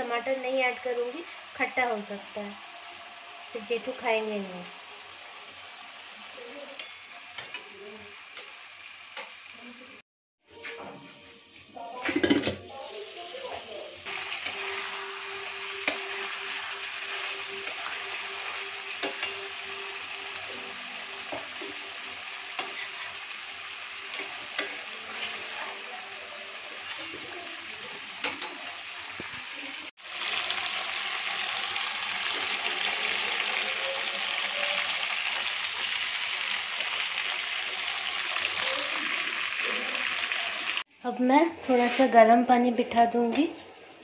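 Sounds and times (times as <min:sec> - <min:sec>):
chicken sizzling in a pan: 0:00.0 - 0:44.0
metal spatula scraping pan: 0:14.2 - 0:23.3, 0:24.0 - 0:28.8.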